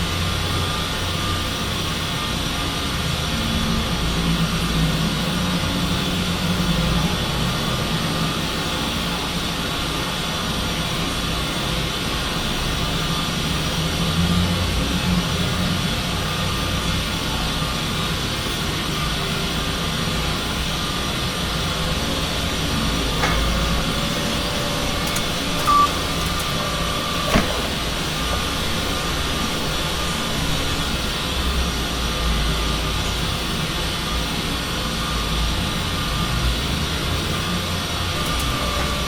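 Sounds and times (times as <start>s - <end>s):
factory machinery hum and hiss: 0.0s - 39.0s
short high beep: 22.8s - 29.8s.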